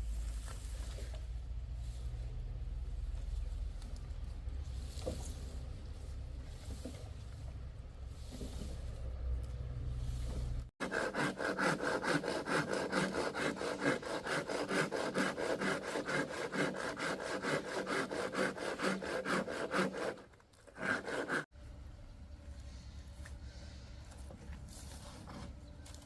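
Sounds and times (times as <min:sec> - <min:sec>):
hand saw cutting wood: 0:10.8 - 0:21.5.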